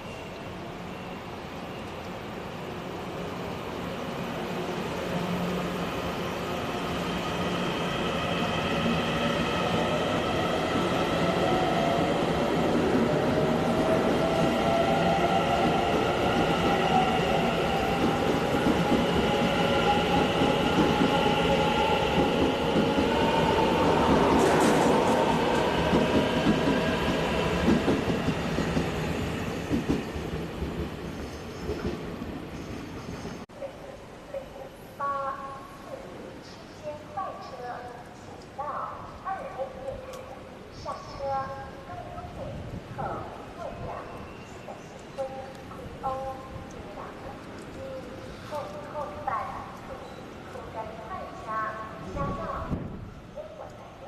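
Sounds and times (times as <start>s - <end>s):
train rumble: 8.3s - 33.5s.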